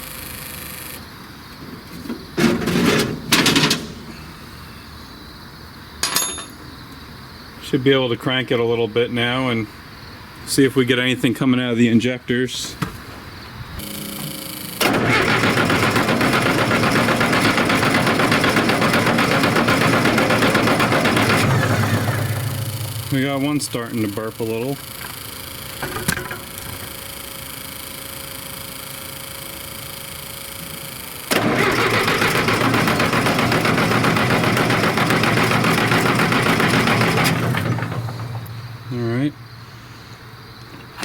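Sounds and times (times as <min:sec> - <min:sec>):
starter cranking diesel engine: 0:02.0 - 0:04.7, 0:13.8 - 0:41.0.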